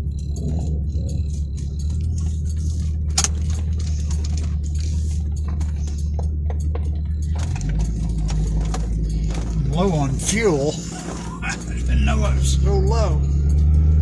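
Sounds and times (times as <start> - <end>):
small clicks: 0.0 - 14.0
vehicle engine idling: 0.0 - 14.0.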